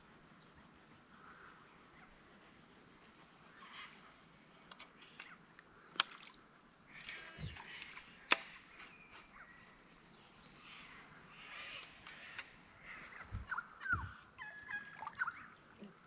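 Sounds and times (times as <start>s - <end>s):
birds calling: 0.0s - 16.0s
sharp clicks: 7.0s - 8.6s.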